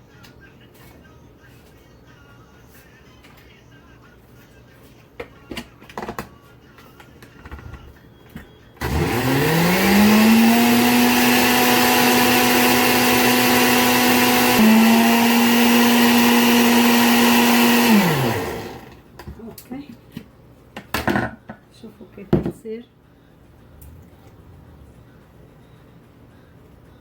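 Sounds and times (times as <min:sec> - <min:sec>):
electric blender whine: 0:08.8 - 0:19.0.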